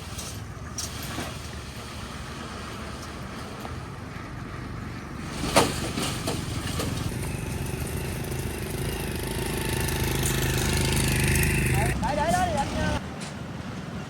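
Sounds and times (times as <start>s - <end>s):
motorbike engine running: 7.0s - 12.2s.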